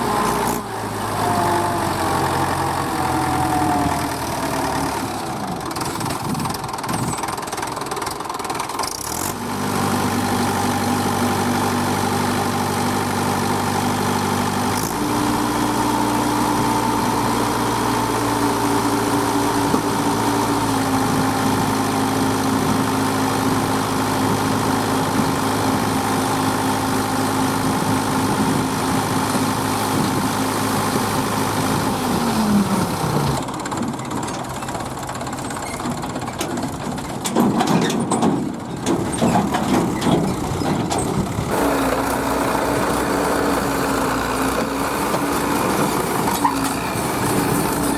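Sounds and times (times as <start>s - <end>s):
diesel engine of heavy machine: 0.0s - 47.9s.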